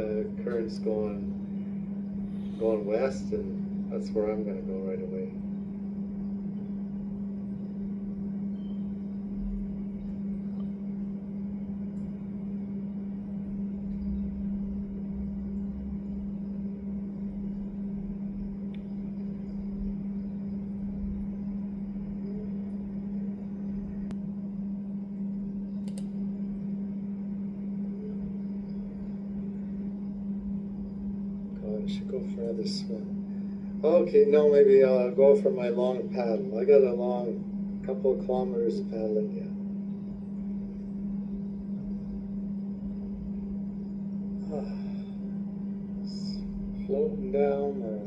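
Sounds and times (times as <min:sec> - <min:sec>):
steady low hum: 0:00.0 - 0:48.0
click: 0:10.5 - 0:10.8, 0:18.7 - 0:18.9, 0:25.8 - 0:26.2.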